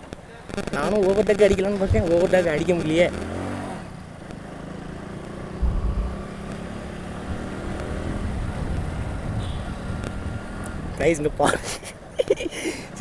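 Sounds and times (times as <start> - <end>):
motorcycle engine running: 3.8 - 9.2
wind rumble on microphone: 5.6 - 11.0.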